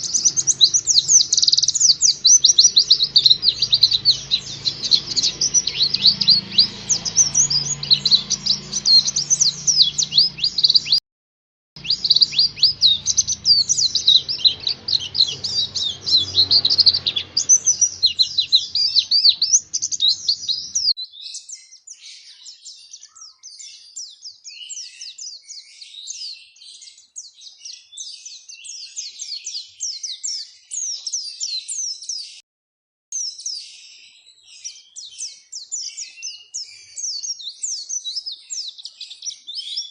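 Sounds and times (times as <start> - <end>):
bird chirping and twittering: 0.0 - 11.0, 11.8 - 32.4, 33.2 - 39.9.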